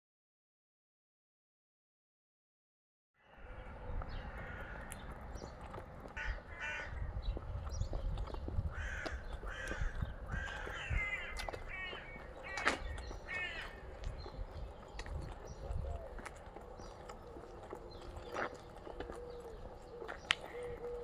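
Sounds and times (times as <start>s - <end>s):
harsh grating bird calls: 3.4s - 15.7s.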